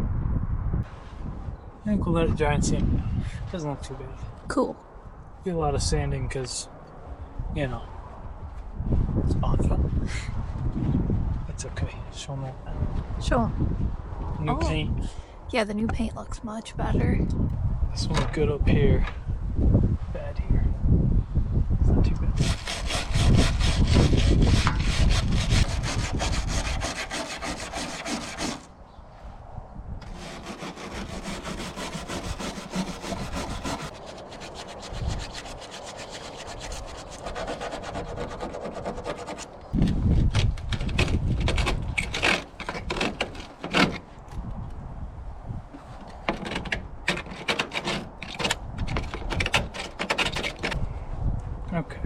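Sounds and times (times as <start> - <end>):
sanding rusty steel: 22.4 - 28.7, 30.0 - 39.6, 41.0 - 44.1, 46.2 - 50.8.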